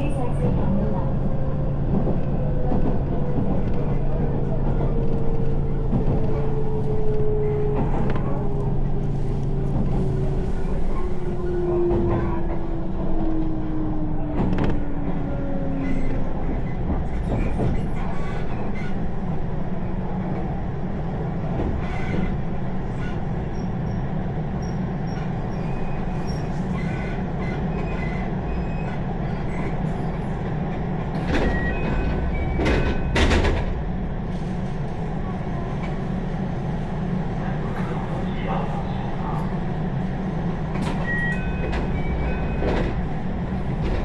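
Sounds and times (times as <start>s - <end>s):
train whine: 0.0s - 17.1s
train rumbling: 0.0s - 44.0s
wheels clacking on rails: 0.0s - 44.0s.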